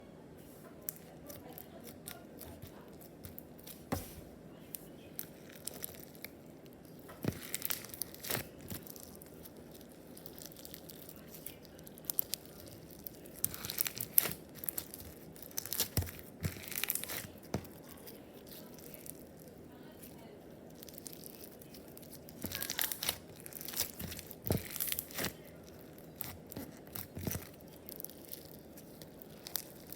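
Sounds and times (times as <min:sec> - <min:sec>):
slime squished by hand: 0:00.8 - 0:29.9.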